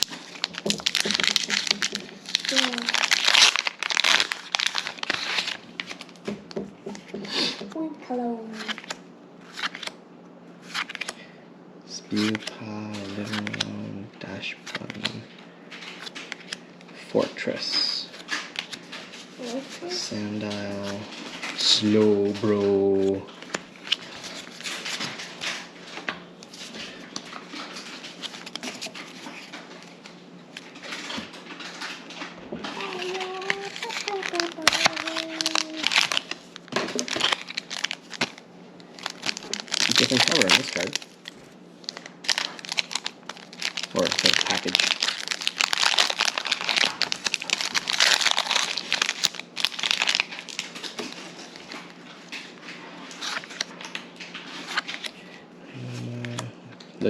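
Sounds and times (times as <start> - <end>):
foil wrapper crinkling: 0.0 - 6.3, 18.0 - 55.3
trading cards clicking and rustling: 0.0 - 7.8, 12.1 - 13.9, 20.2 - 55.2.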